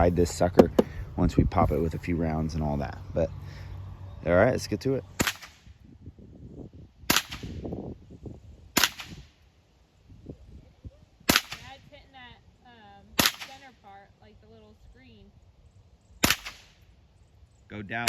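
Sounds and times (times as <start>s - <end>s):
rifle shots: 5.2s - 5.7s, 7.1s - 7.6s, 8.8s - 9.3s, 11.3s - 11.7s, 13.2s - 13.7s, 16.2s - 16.8s.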